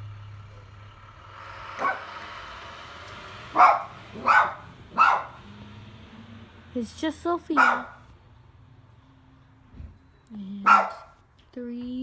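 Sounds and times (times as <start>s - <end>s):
low hum: 0.0s - 10.4s
dog barking: 3.6s - 5.4s, 7.5s - 8.0s, 10.6s - 11.2s.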